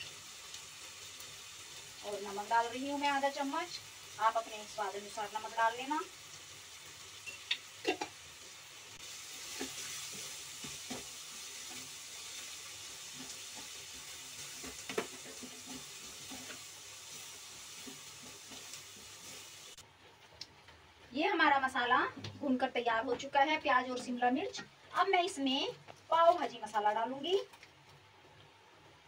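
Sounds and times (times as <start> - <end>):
onions sizzling in butter: 0.0 - 29.0
wooden spatula scraping a pan: 9.3 - 20.3.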